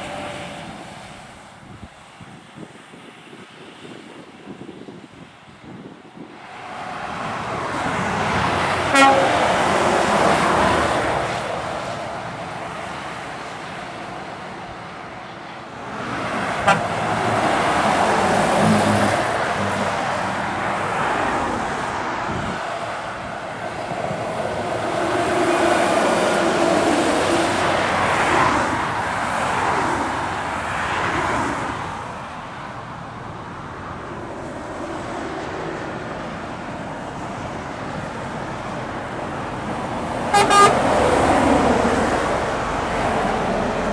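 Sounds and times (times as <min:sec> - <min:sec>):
heavy trucks climbing uphill: 0:00.0 - 0:43.9
truck horn toot: 0:08.8 - 0:09.7, 0:16.4 - 0:17.2, 0:40.3 - 0:41.2.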